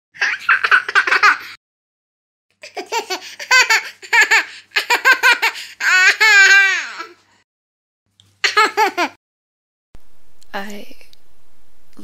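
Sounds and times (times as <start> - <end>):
baby laughing: 0.2 - 1.6, 2.6 - 7.2, 8.4 - 9.2.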